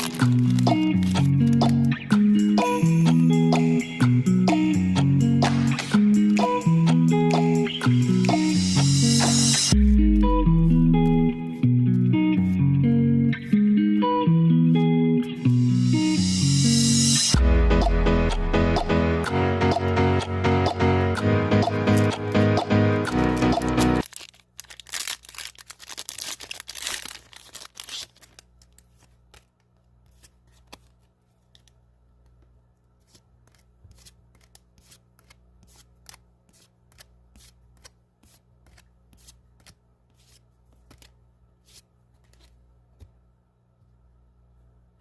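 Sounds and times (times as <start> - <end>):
foil pack tearing and crinkling: 0.0 - 1.9, 23.2 - 29.5
cards flicking and clicking: 0.0 - 3.8, 5.4 - 8.6, 26.2 - 43.1
music: 0.0 - 24.0.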